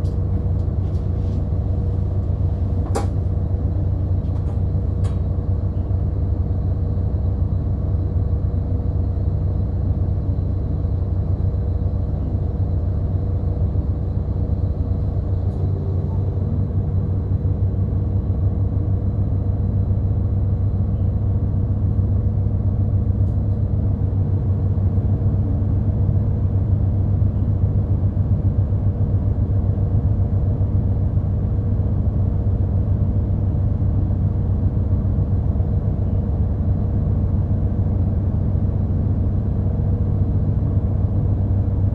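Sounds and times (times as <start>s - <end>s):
bus engine and road rumble: 0.0s - 41.9s.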